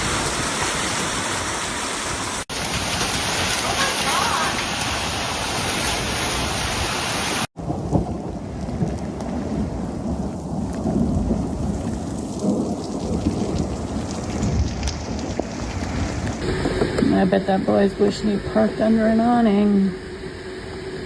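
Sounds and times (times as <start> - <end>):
heavy rain hissing: 0.0 - 7.5
rain or hail taps: 0.0 - 17.1
thunder rumbling: 7.5 - 21.0.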